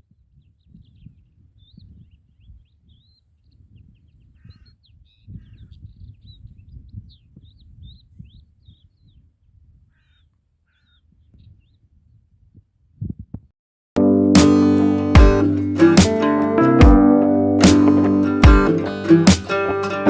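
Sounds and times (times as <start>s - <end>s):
small birds chirping: 0.3s - 11.9s
harsh bird caws: 9.9s - 11.0s.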